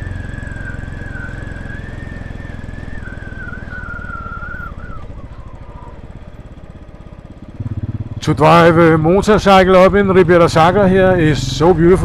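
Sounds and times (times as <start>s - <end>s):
wavering high whistle: 0.0s - 5.9s
motorcycle engine running: 0.0s - 12.0s.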